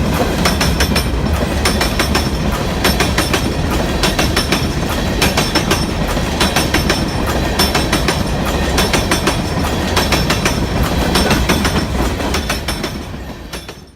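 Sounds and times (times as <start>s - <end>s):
railroad cars rumbling past: 0.0s - 13.9s
wheels clicking over rail joints: 0.0s - 13.9s.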